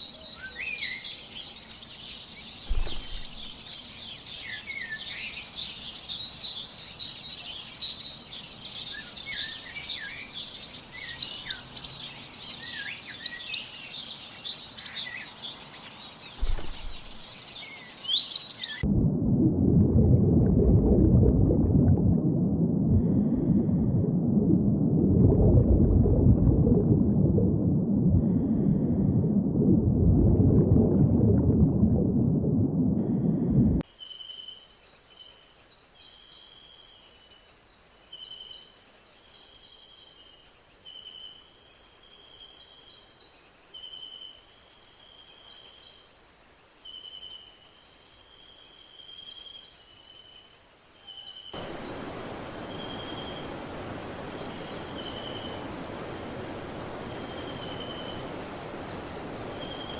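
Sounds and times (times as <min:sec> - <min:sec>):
loud low rumbling: 0:18.8 - 0:33.8
high-pitched insect drone: 0:51.6 - 0:59.9
soft hiss: 0:51.6 - 0:59.9.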